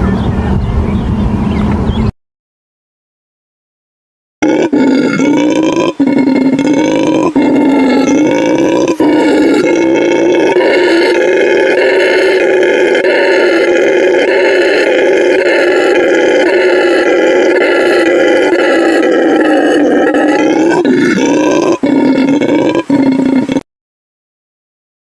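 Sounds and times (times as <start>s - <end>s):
animal roaring: 4.4s - 23.7s.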